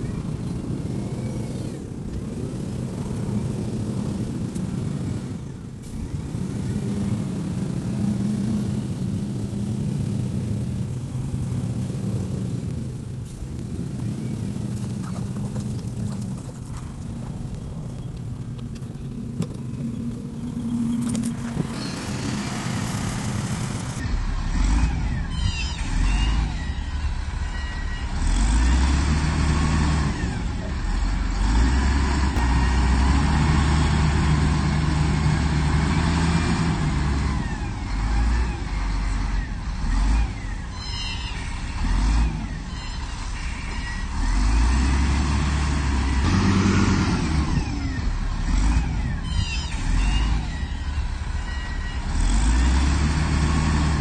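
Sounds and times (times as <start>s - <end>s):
heavy machinery diesel engine: 0.0s - 54.0s
high squeaks: 42.6s - 44.2s.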